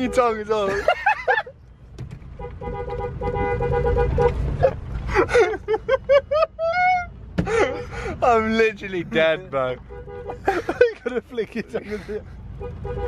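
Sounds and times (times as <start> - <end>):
car horn: 0.0 - 0.7, 2.3 - 4.6, 9.6 - 10.6, 12.5 - 13.0.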